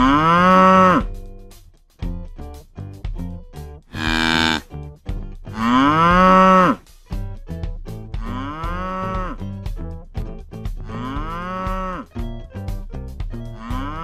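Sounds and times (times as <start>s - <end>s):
electronic toy cow mooing: 0.0s - 1.1s, 3.9s - 4.6s, 5.6s - 6.8s, 8.2s - 9.4s, 10.9s - 12.1s, 13.6s - 14.0s.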